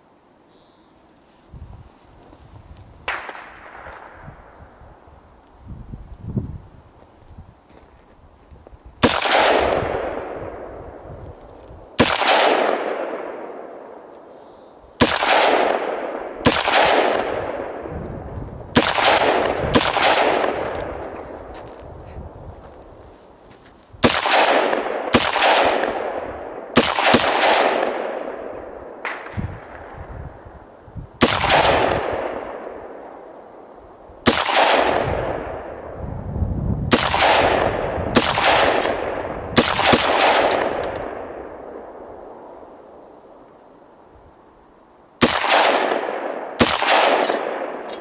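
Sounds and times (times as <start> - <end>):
rifle shots with echo: 3.1 - 4.8, 9.0 - 11.0, 11.9 - 14.3, 15.0 - 17.9, 18.7 - 21.7, 24.0 - 30.5, 31.2 - 36.0, 36.9 - 43.2, 45.2 - 48.0.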